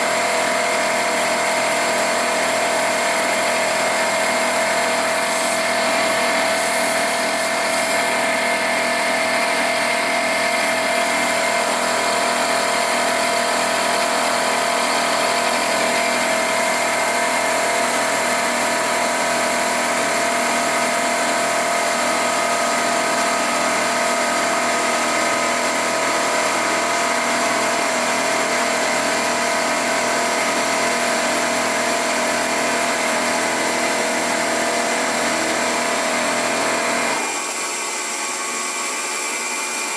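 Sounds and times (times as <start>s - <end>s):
milling machine whining: 0.0s - 39.9s.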